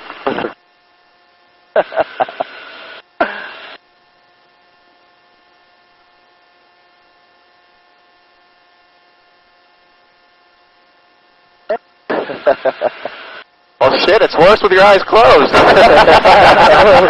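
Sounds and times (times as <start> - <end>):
faint electrical hum: 0.0 - 17.0
intercom noise bursts with crackles: 0.1 - 0.6.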